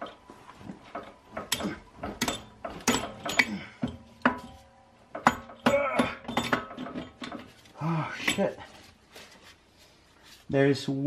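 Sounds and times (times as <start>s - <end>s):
metal knocks and clunks: 0.0s - 8.6s.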